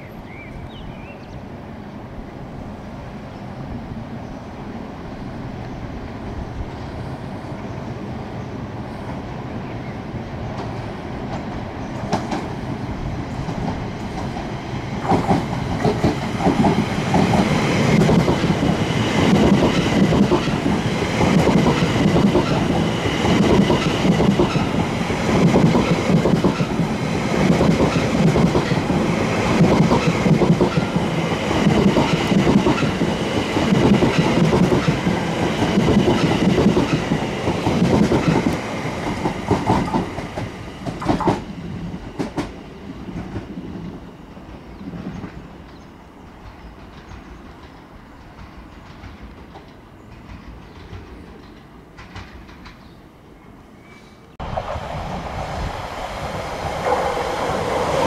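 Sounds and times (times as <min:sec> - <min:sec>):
train wheels clattering on rails: 0:10.5 - 0:12.6, 0:13.2 - 0:53.0.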